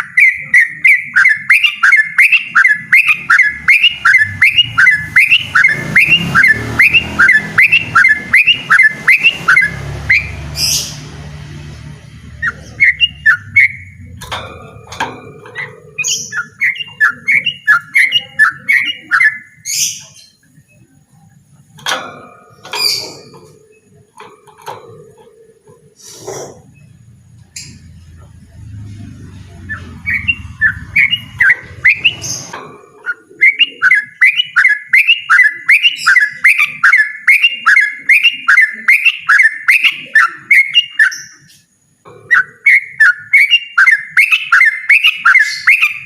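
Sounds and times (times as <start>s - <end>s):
bird singing rolling song: 0.0s - 46.0s
bird single calls: 12.4s - 21.0s
low rumble: 26.7s - 32.5s.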